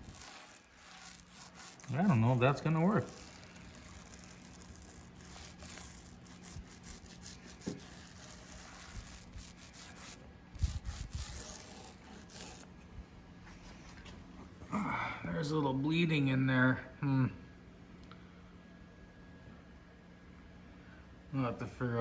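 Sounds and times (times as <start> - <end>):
hand rubbing and scratching wood: 0.0 - 12.9.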